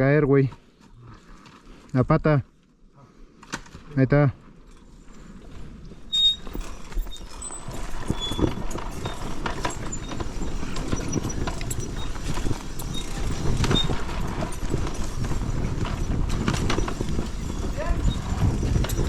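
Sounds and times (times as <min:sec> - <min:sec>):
dirt bike engine rumble: 0:06.1 - 0:19.0.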